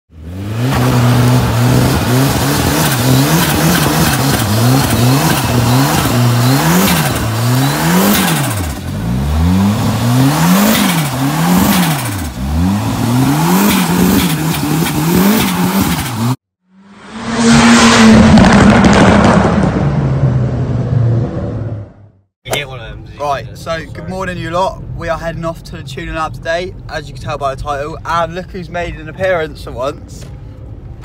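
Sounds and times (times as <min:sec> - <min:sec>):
car engine revving: 0:00.1 - 0:22.2.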